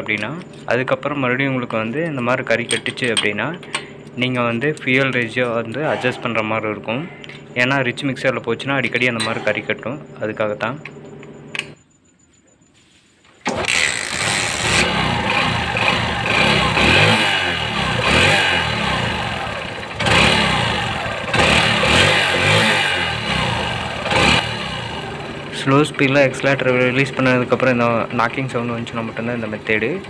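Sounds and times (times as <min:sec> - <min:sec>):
motorcycle engine revving: 0:05.0 - 0:08.4, 0:13.5 - 0:30.0.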